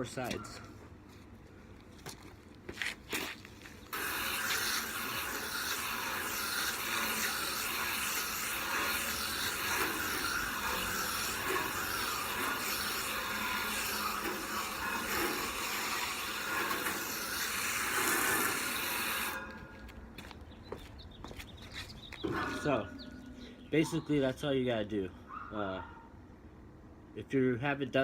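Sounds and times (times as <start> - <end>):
garden hose spraying water: 3.9 - 19.5.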